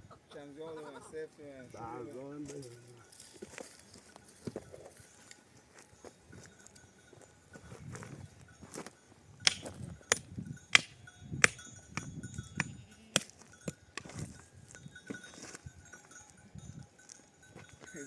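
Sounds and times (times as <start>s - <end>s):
sharp hammering knocks: 9.4s - 13.3s.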